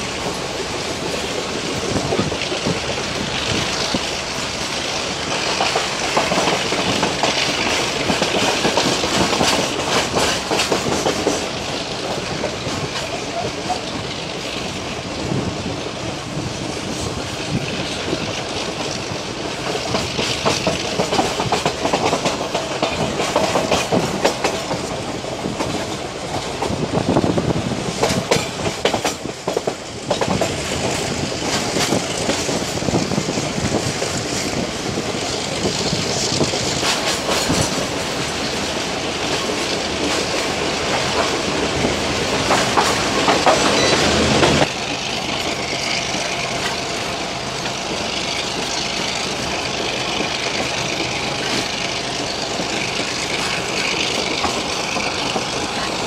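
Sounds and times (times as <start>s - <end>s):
train wheels clicking over rails: 0.0s - 56.0s
wind noise: 0.1s - 44.7s.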